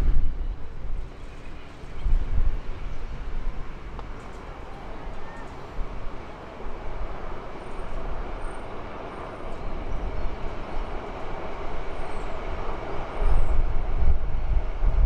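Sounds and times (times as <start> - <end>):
distant train wheels on rail: 0.0 - 15.0.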